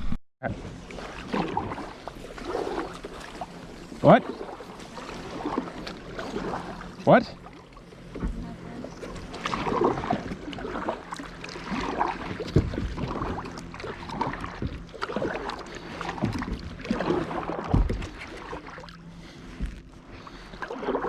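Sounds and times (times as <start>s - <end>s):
paddle splashing in water: 0.5s - 21.0s.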